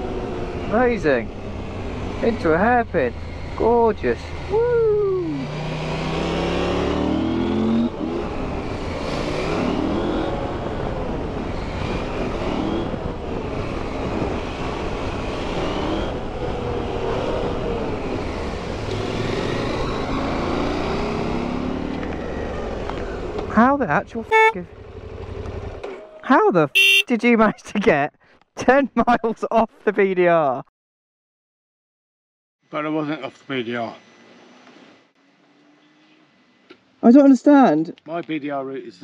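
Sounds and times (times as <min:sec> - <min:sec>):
wind and road noise: 0:00.0 - 0:30.0
motorcycle engine shifting gears: 0:05.3 - 0:23.6, 0:24.7 - 0:26.2.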